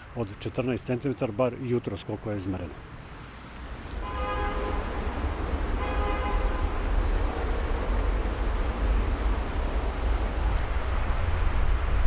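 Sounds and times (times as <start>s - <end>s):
street traffic rumble: 0.0s - 12.0s
vehicle horn toots: 4.0s - 5.0s, 5.8s - 6.7s.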